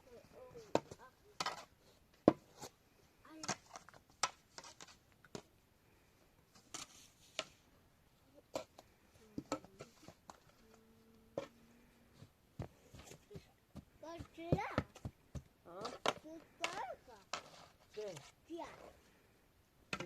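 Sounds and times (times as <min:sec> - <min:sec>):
objects being handled: 0:00.0 - 0:05.6, 0:06.5 - 0:07.7, 0:08.4 - 0:19.2
faint steady tone: 0:05.6 - 0:17.1.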